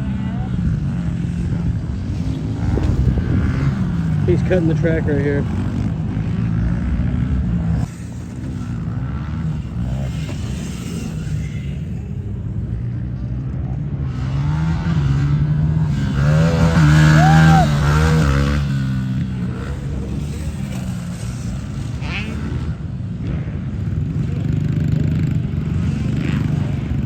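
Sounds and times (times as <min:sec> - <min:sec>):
pit bike engine revving: 0:00.0 - 0:27.0.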